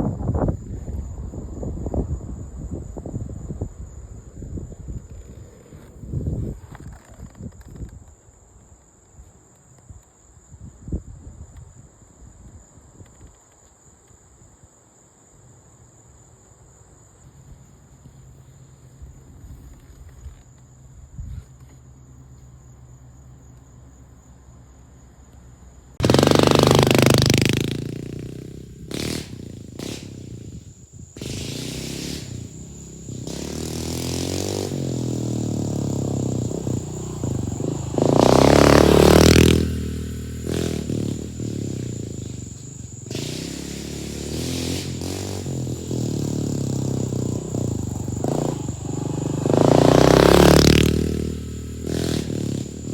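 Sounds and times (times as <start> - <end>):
pit bike engine revving: 26.0 - 52.9.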